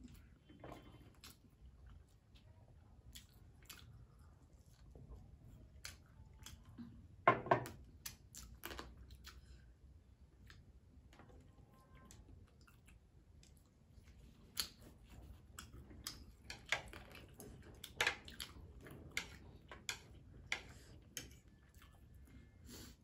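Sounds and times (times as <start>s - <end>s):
people chewing with mouth clicks: 0.0s - 23.0s.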